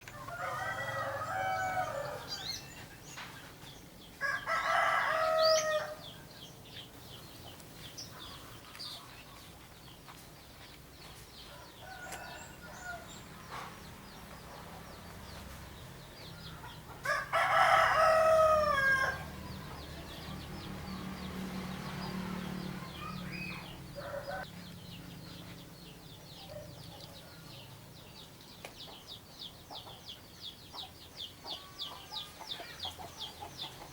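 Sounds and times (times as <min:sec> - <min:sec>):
small birds chirping: 0:00.0 - 0:33.9
rooster crowing: 0:00.1 - 0:02.6, 0:04.2 - 0:06.1, 0:11.5 - 0:13.2, 0:16.4 - 0:20.4, 0:22.8 - 0:24.5.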